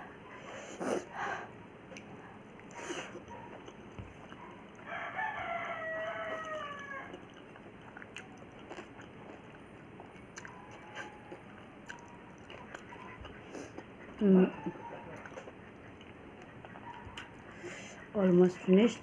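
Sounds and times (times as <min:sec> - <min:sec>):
soft chewing and clicks: 0:01.8 - 0:18.8
rooster crowing: 0:04.8 - 0:07.2.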